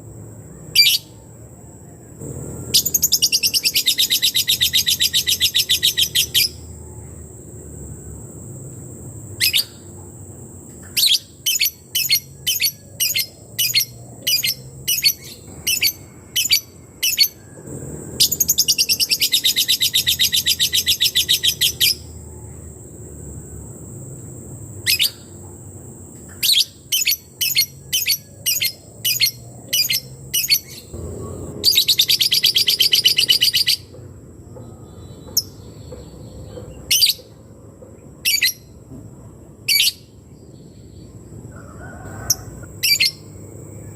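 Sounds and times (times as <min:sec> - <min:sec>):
bird chirping and trilling: 0:00.7 - 0:01.2, 0:02.7 - 0:06.7, 0:09.4 - 0:09.8, 0:10.8 - 0:17.4, 0:18.2 - 0:22.2, 0:24.8 - 0:25.4, 0:31.6 - 0:33.9, 0:38.2 - 0:38.7, 0:42.8 - 0:43.3.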